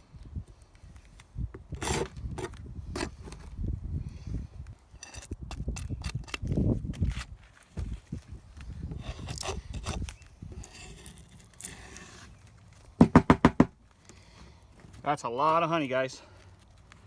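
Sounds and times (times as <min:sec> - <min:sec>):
wind rumble on microphone: 0:00.0 - 0:11.1
wooden frames clicking and knocking: 0:13.0 - 0:13.8.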